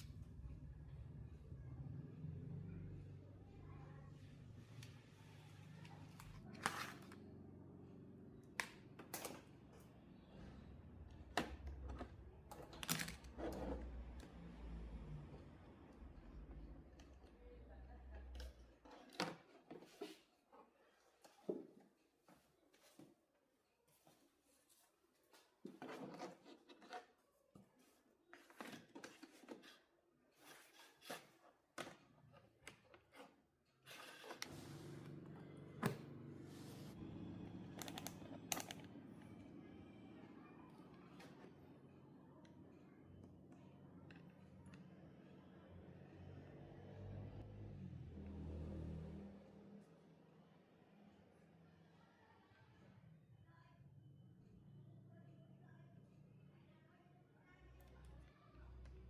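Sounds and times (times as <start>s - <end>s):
faint low hum: 34.2s - 59.0s.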